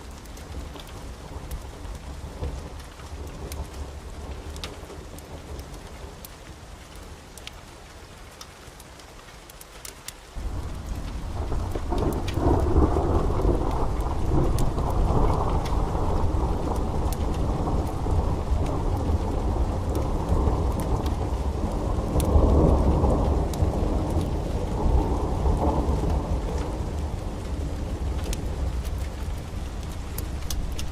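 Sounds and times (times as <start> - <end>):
steady rain: 0.0 - 30.9
thunder rumbling: 10.4 - 30.9.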